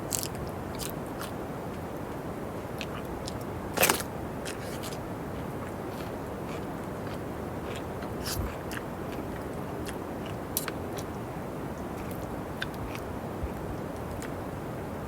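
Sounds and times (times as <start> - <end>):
person eating crunchy bites: 0.1 - 1.4.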